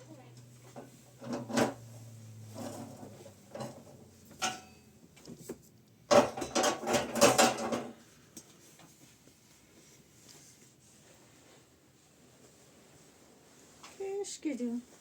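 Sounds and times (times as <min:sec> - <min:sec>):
hard objects knocking and clattering: 0:02.6 - 0:08.0.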